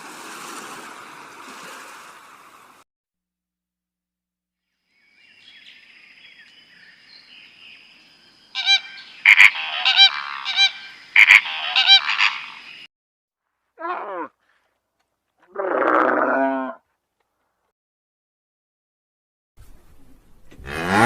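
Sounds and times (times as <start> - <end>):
honking bird calls: 8.6 - 12.9.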